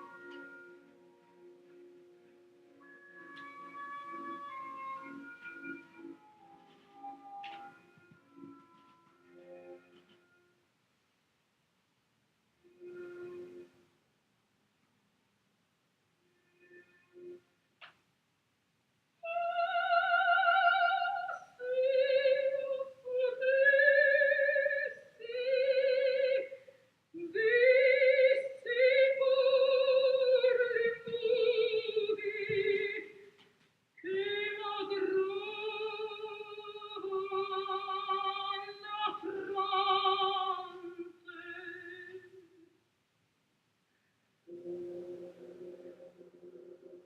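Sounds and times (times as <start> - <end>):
person singing operatically: 19.2 - 26.6, 27.2 - 33.2, 34.0 - 42.6.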